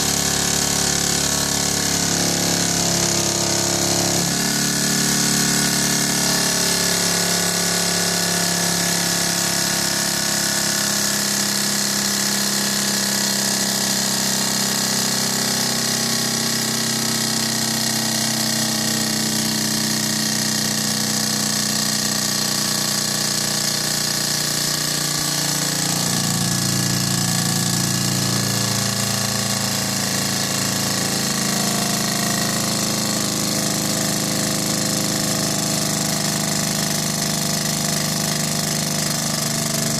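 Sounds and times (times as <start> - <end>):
small engine whirring and hissing: 0.0 - 39.9.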